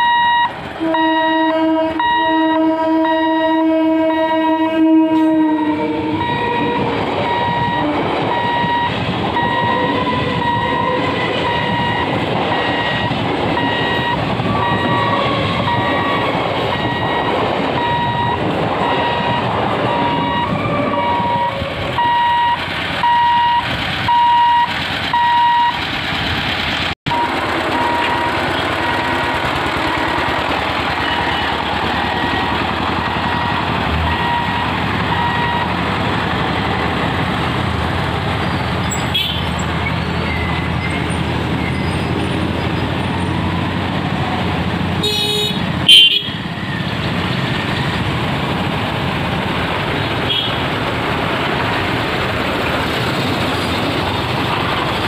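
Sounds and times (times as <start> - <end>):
crossing warning beeps: 0.0 - 4.6, 5.6 - 25.8, 27.1 - 36.9, 38.4 - 44.4, 45.1 - 47.6
train coaches running on rails: 0.0 - 55.0
train horn: 0.8 - 8.7, 9.4 - 11.7, 14.5 - 17.0, 45.0 - 46.4.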